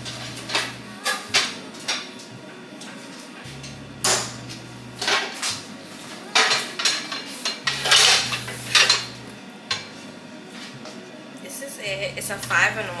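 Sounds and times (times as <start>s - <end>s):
low hum: 0.0s - 2.8s, 3.4s - 6.1s, 7.6s - 10.8s
pots and pans clattering: 4.0s - 10.0s.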